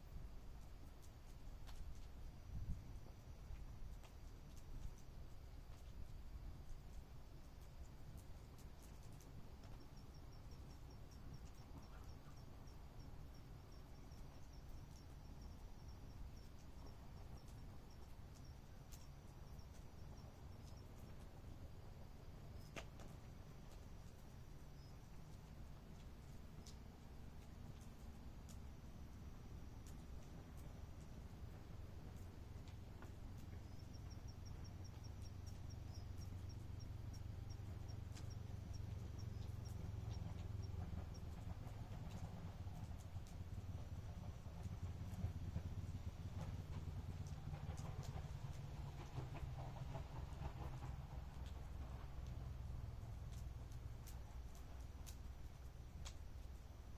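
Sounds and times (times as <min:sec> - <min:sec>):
campfire crackling: 0:00.0 - 0:56.9
low steady rumble: 0:00.0 - 0:56.9
insects chirping: 0:00.1 - 0:56.9
faint sharp clicks: 0:22.6 - 0:28.7, 0:53.2 - 0:56.6.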